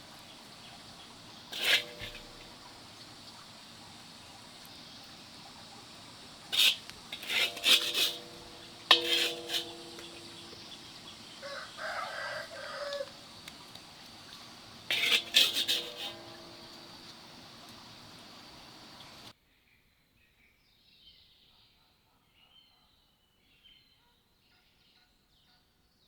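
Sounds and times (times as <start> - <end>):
chickens squawking: 5.6 - 13.5
rooster crowing: 11.2 - 13.4.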